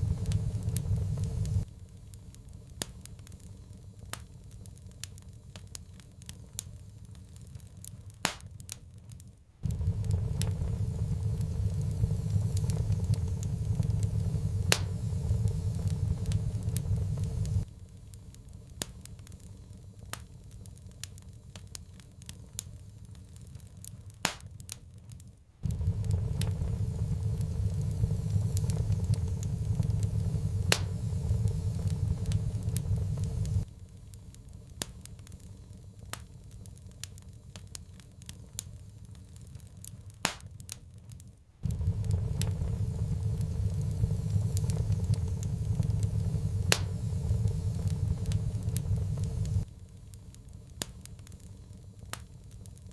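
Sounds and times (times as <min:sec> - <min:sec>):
low steady rumble: 0:00.0 - 0:08.2, 0:09.4 - 0:24.2, 0:25.4 - 0:40.3, 0:41.4 - 0:52.9
wood fire crackling: 0:00.0 - 0:52.9
sharp pops: 0:40.2 - 0:40.5.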